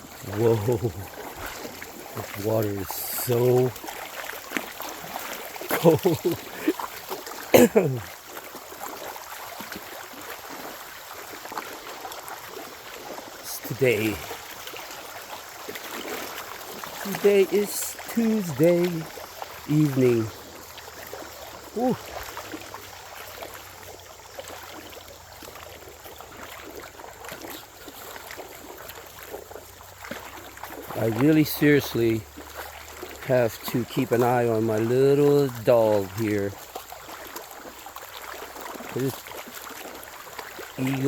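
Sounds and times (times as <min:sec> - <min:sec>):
creek water running: 0:00.0 - 0:41.0
splashes of wading: 0:00.0 - 0:41.0
person exclaiming: 0:00.3 - 0:01.0, 0:05.7 - 0:06.8, 0:07.6 - 0:08.1, 0:21.8 - 0:22.0.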